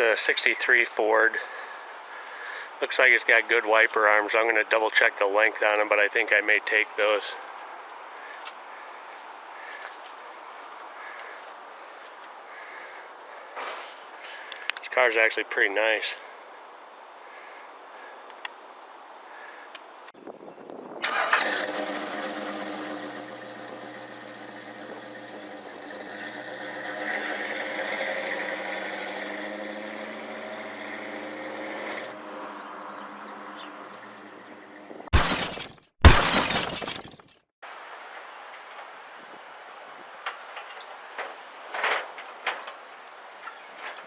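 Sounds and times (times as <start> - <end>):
vehicle engine running: 21.6 - 30.6.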